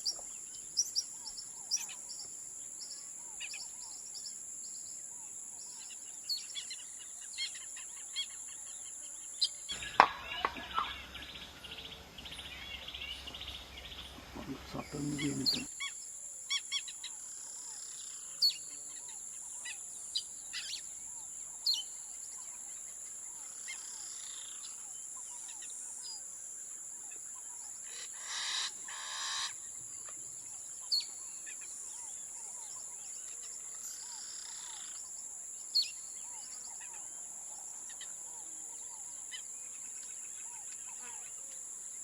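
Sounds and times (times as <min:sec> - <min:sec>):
birds chirping: 0:00.0 - 0:25.6.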